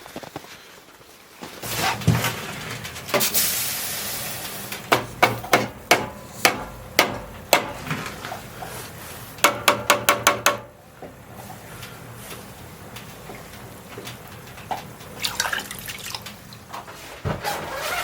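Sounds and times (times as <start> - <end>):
sharp knocks: 4.9 - 7.9, 9.4 - 10.7.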